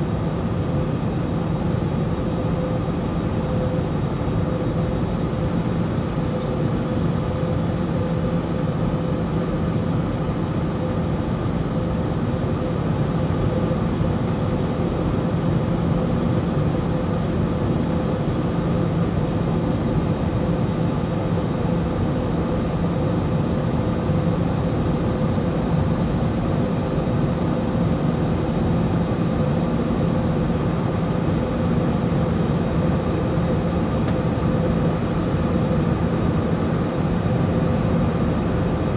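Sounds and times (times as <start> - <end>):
airliner cabin noise: 21.8 - 38.9.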